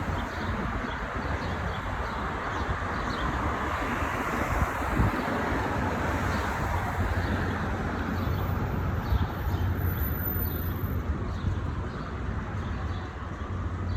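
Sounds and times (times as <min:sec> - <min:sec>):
city traffic noise: 0:00.0 - 0:13.9
wind rumble on microphone: 0:00.0 - 0:13.9.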